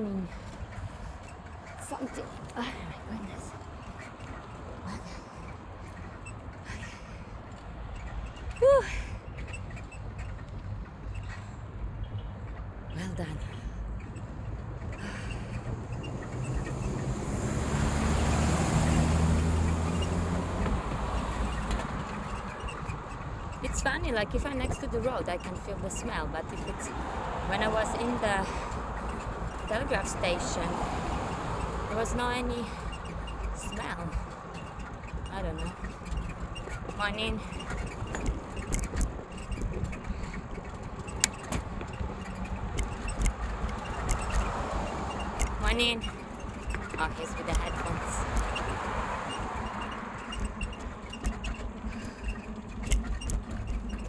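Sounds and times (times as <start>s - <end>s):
wind rumbling on microphone: 0.0s - 54.0s
vehicle driving past: 14.9s - 23.6s, 26.9s - 32.1s, 42.4s - 52.8s
bicycle clicks and rattles: 19.0s - 54.0s.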